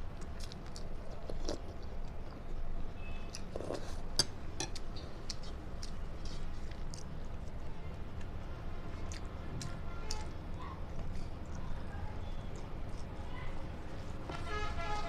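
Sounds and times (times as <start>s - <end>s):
chewing food: 0.0s - 14.2s
wet mouth clicks and crunches: 0.1s - 2.7s, 3.3s - 8.4s.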